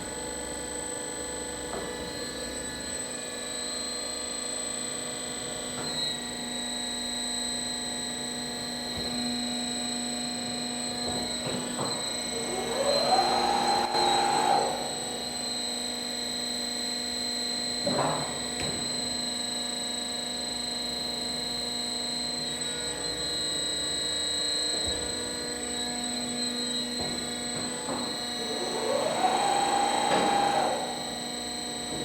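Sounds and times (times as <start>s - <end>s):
bandsaw machine hum: 12.1s - 15.8s, 26.0s - 32.0s
bandsaw whine: 12.3s - 15.7s, 26.4s - 31.9s.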